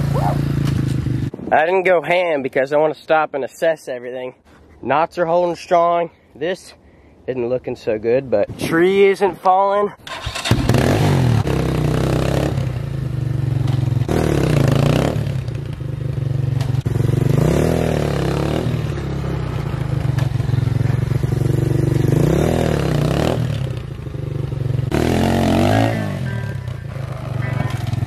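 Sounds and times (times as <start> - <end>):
dirt bike engine idling and revving: 0.0 - 1.4, 10.1 - 28.0.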